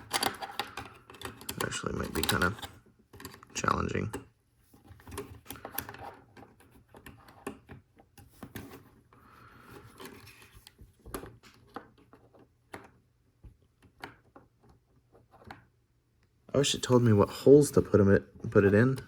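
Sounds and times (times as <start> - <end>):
plastic parts clicking and rattling: 0.0 - 8.9
soft plastic rubbing: 0.0 - 15.8.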